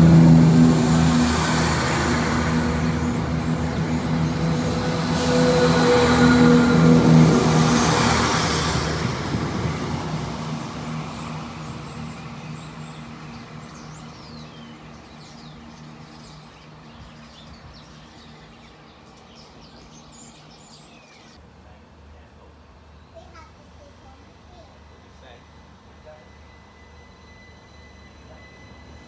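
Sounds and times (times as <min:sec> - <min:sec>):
train engine drone: 0:00.0 - 0:29.0
birds chirping: 0:09.3 - 0:21.4.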